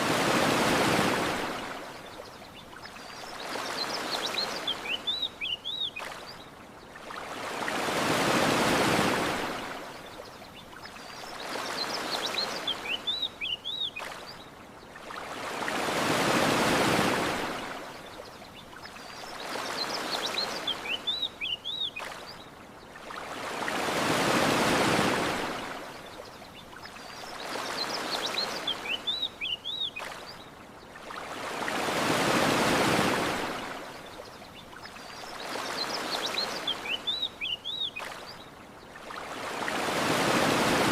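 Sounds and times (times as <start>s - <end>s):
ocean surf washing on shore: 0.0s - 2.1s, 7.0s - 10.0s, 15.0s - 18.0s, 23.0s - 26.1s, 31.0s - 34.1s, 39.0s - 40.9s.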